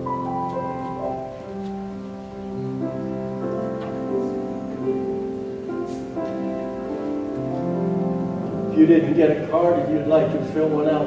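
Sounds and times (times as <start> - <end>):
slow keyboard chords: 0.0 - 11.0.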